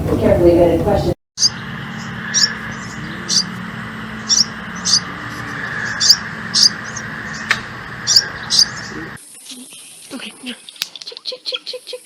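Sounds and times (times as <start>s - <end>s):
steady background hum: 0.0s - 9.2s
small bird chirping: 1.4s - 12.0s.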